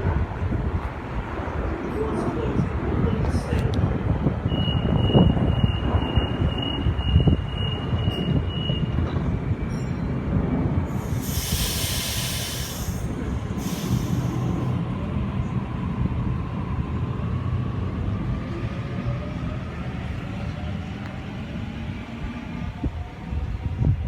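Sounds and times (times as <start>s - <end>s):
train rumble: 0.0s - 24.0s
air hissing: 10.9s - 14.7s.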